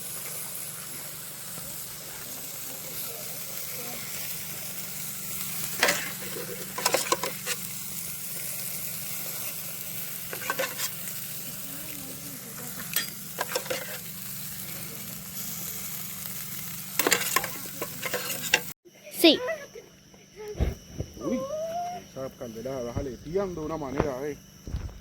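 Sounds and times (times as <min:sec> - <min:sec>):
campfire crackling: 0:00.0 - 0:18.5
butter sizzling: 0:00.0 - 0:18.8.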